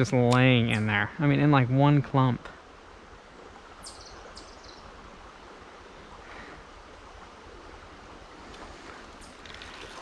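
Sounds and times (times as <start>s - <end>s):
creek water rushing: 0.0s - 10.0s.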